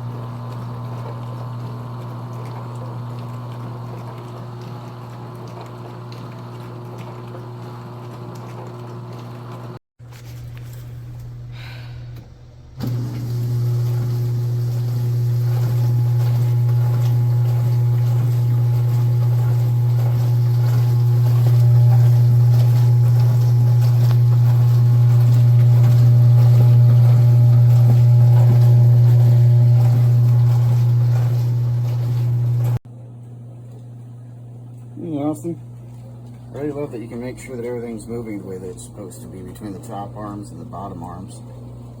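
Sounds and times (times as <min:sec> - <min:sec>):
water splashing over dishes: 0:00.0 - 0:09.8, 0:12.8 - 0:32.8
dishwasher pump humming: 0:00.0 - 0:42.0.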